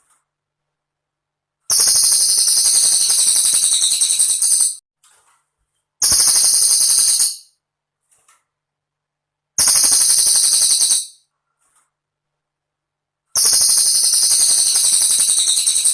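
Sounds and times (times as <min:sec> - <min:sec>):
high jingling bird trills: 0:01.7 - 0:04.8, 0:09.6 - 0:11.2, 0:13.4 - 0:15.9.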